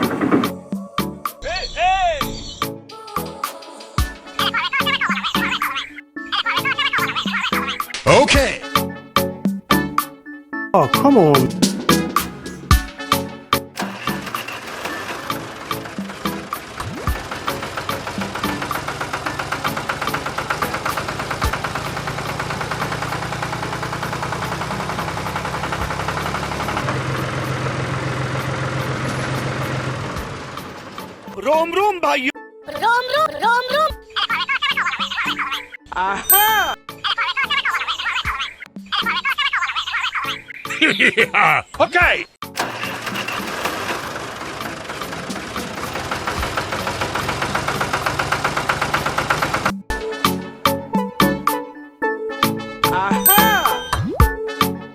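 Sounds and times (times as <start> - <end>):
engine running with knocking beat: 11.6 - 31.4, 42.5 - 50.1
small motor rattling and humming: 13.8 - 31.3, 42.6 - 49.8.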